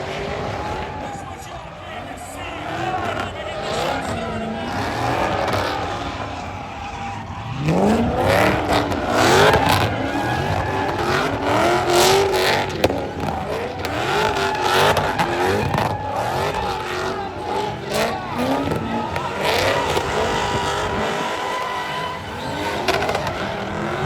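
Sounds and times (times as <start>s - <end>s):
car engine revving hard: 0.0s - 24.0s
tyre squeal: 0.0s - 24.0s.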